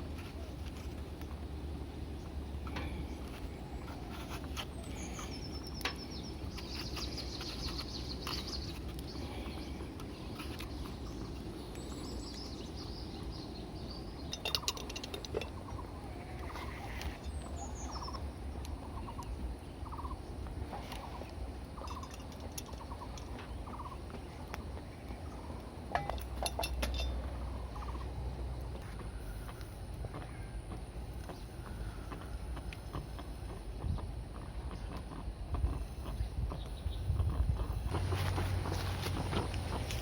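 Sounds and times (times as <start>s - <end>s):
birds chirping and trilling: 0.0s - 40.0s
steady low rumble: 0.0s - 40.0s
rattle of clicks: 14.2s - 15.8s.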